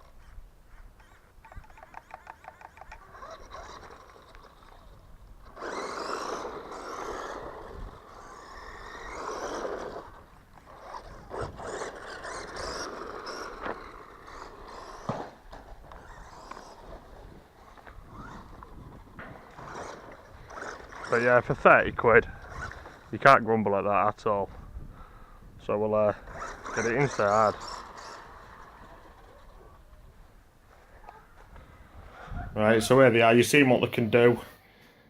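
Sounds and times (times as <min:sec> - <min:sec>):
electric toy car motor: 0:00.0 - 0:23.2, 0:26.2 - 0:30.0.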